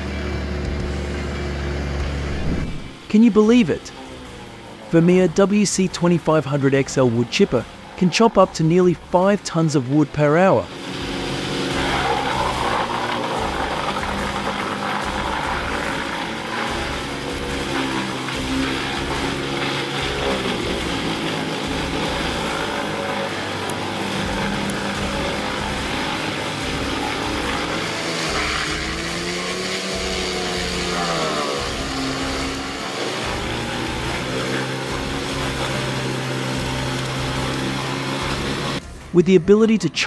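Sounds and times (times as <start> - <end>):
wood chipper running under load: 0.0 - 39.2.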